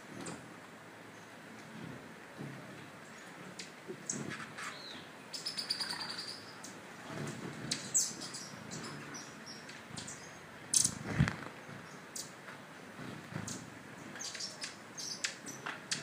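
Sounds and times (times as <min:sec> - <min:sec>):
small birds chirping: 0:02.4 - 0:16.0
bird trill: 0:04.7 - 0:06.8.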